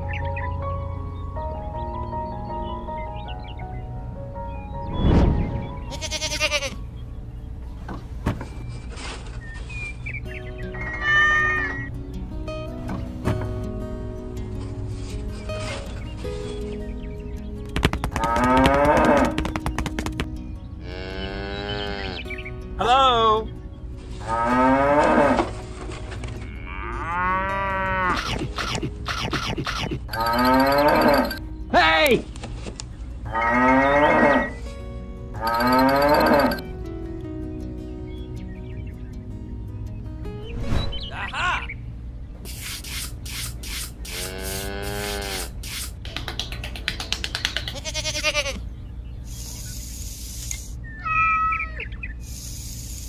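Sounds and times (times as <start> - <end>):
short quavering bleat: 5.9 - 6.8, 44.1 - 45.5, 47.8 - 48.6
cows mooing: 20.8 - 22.2, 24.2 - 25.5, 26.4 - 28.3, 30.1 - 31.4, 33.3 - 34.6, 35.4 - 36.6, 44.2 - 45.5
short scraping strokes: 42.4 - 46.0.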